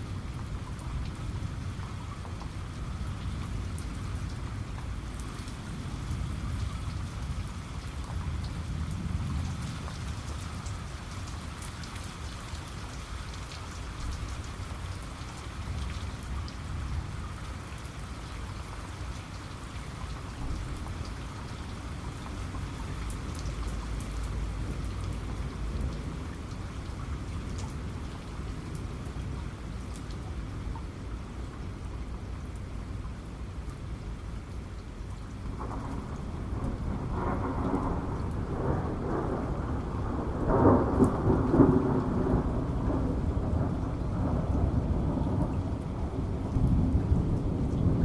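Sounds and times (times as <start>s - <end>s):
raindrops ticking: 0.2s - 16.8s, 17.6s - 33.8s
rain hissing: 35.3s - 48.0s.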